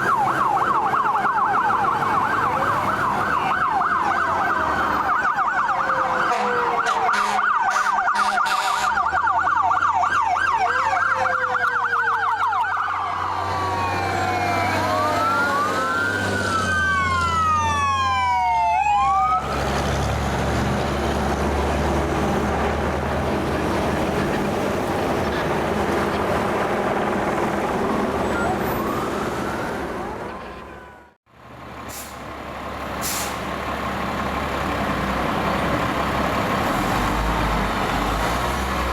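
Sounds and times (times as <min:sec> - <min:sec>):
emergency siren yelp and wail: 0:00.0 - 0:31.3
road noise: 0:00.0 - 0:38.9
truck engine: 0:00.0 - 0:38.9.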